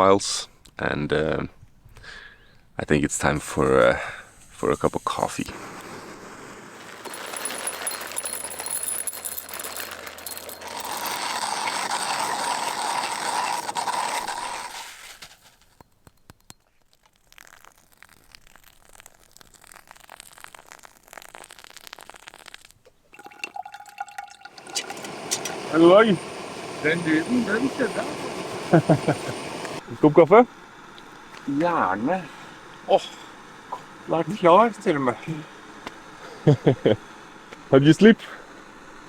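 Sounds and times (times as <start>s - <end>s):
water pouring: 6.8s - 14.8s, 16.8s - 26.8s.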